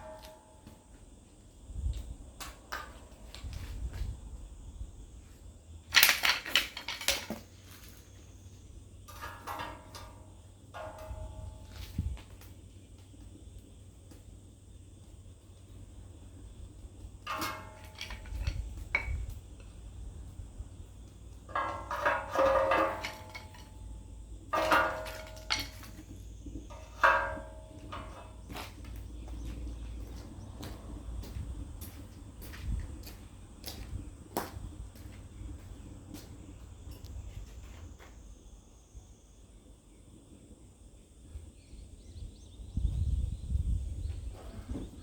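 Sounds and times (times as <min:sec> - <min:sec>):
metal pieces clanking: 0:05.9 - 0:07.5, 0:17.3 - 0:19.2, 0:21.5 - 0:28.8
sharp knocks and clatter: 0:05.9 - 0:08.0, 0:09.0 - 0:12.5, 0:17.2 - 0:19.8, 0:21.3 - 0:32.0.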